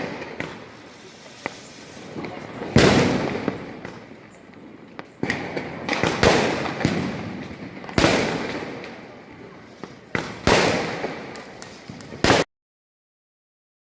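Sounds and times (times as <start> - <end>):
firecracker bangs: 0.0 - 4.1, 5.2 - 9.1, 9.9 - 12.5
small firecracker cracks and pops: 1.4 - 9.1, 9.8 - 12.5.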